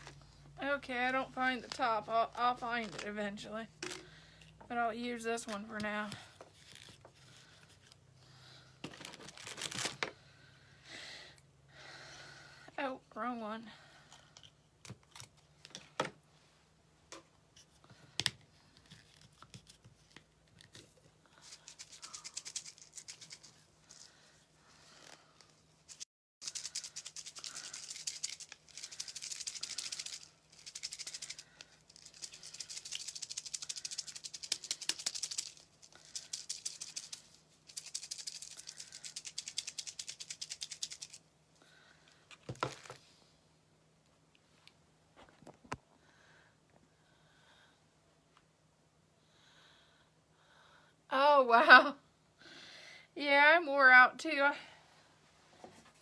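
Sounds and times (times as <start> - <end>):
loose pieces rattling in container: 25.9 - 41.2.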